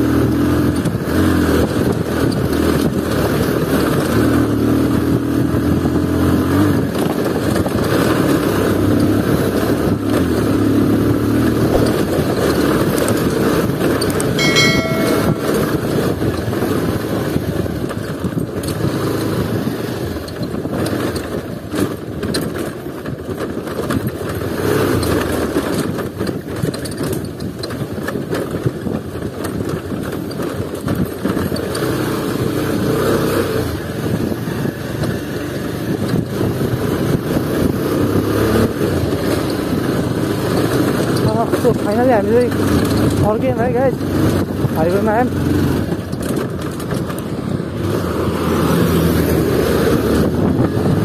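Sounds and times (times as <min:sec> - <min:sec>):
motorcycle engine at low speed: 0:00.0 - 0:51.0
motorcycle knocking and rattling: 0:00.0 - 0:51.0.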